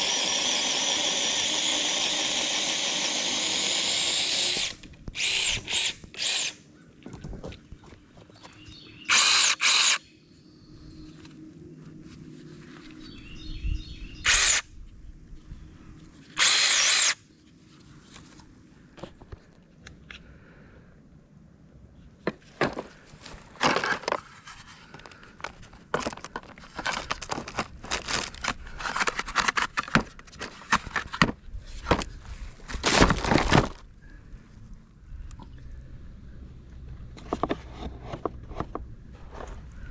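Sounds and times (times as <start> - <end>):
chainsaw cutting wood: 0.0 - 6.6, 9.1 - 10.0, 14.2 - 14.6, 16.4 - 17.2
electric chainsaw motor revving: 0.0 - 6.6, 9.1 - 10.0, 14.2 - 14.6, 16.4 - 17.2.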